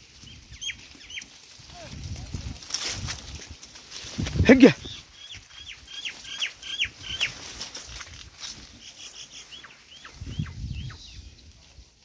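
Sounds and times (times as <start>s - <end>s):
goats rustling through leaves: 0.0s - 12.0s
small bird chirping: 4.8s - 7.4s, 8.7s - 11.4s.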